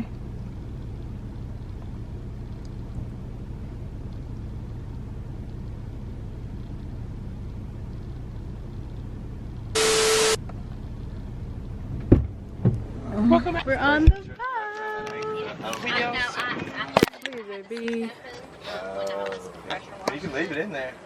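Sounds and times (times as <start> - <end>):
car driving rumble: 0.0 - 21.0
burst of hiss with tone: 9.8 - 10.4.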